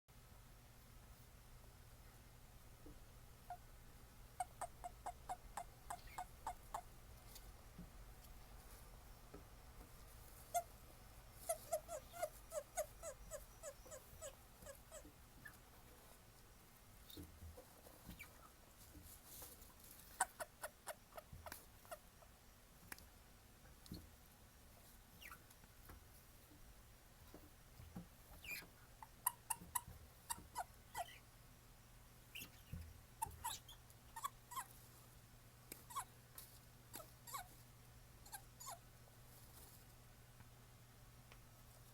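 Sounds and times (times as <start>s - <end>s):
toads chirping: 4.4s - 6.9s, 11.4s - 15.0s, 28.4s - 31.3s, 32.3s - 34.7s.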